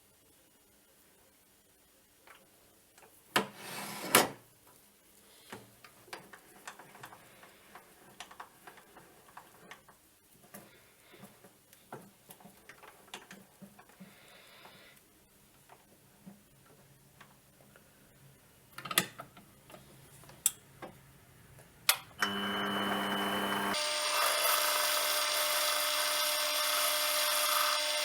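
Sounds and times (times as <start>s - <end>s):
short scrape: 3.6s - 4.2s.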